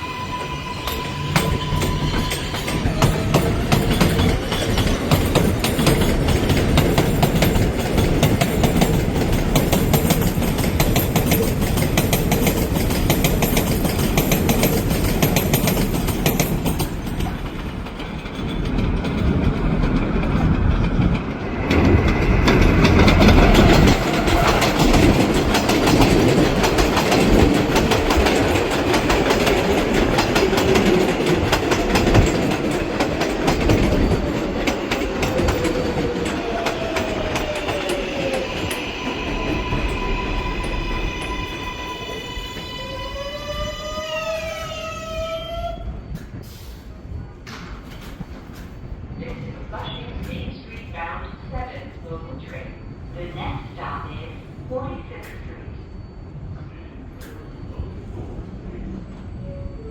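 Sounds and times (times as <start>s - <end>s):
train wheels clattering over rail joints: 0.8s - 40.0s.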